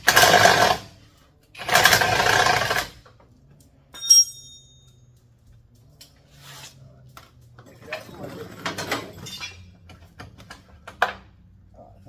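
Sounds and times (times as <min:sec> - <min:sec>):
power wrench bursts: 0:00.0 - 0:01.0, 0:01.6 - 0:03.0
metal part clinking: 0:03.9 - 0:05.0.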